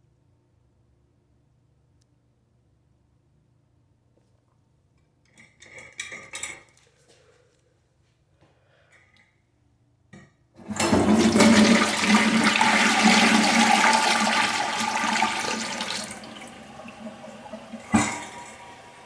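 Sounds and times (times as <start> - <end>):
toilet flushing: 10.6 - 19.0.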